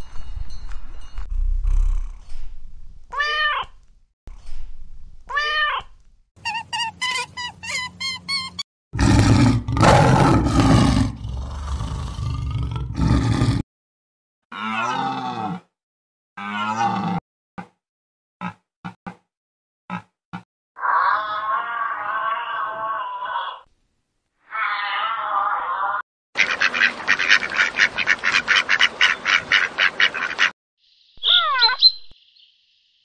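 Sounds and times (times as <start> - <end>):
cat meowing: 3.1 - 3.7, 5.3 - 5.9, 31.2 - 31.8
lion roaring: 9.0 - 13.6.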